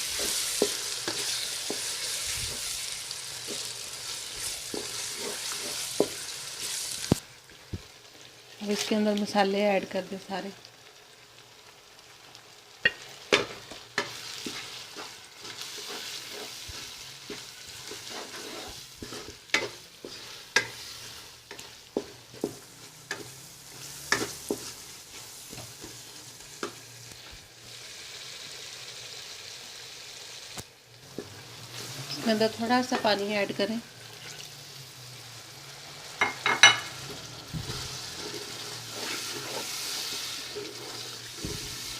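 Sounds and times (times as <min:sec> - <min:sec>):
spoon knocking and scraping pan: 0:00.0 - 0:02.8, 0:03.4 - 0:06.3, 0:12.8 - 0:26.0, 0:36.2 - 0:41.9
masala sizzling in hot oil: 0:00.0 - 0:41.9.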